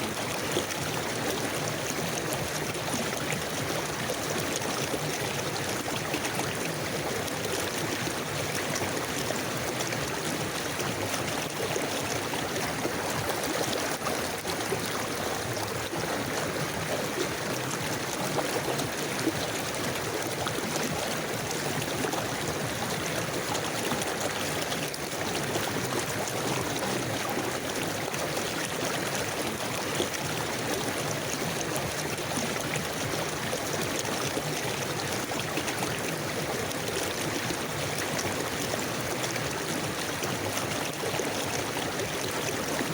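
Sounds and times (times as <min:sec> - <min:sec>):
river water flowing: 0:00.0 - 0:42.9.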